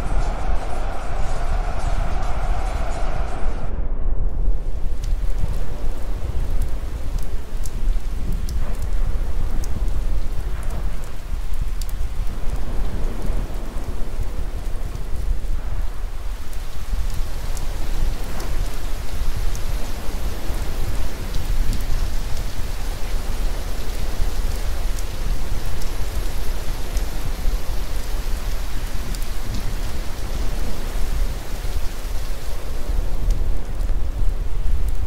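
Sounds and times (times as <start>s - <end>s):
steady rain falling: 0.0s - 3.7s, 4.3s - 35.0s
deep low rumble: 0.0s - 16.3s
faint drip-like ticks: 4.9s - 35.0s.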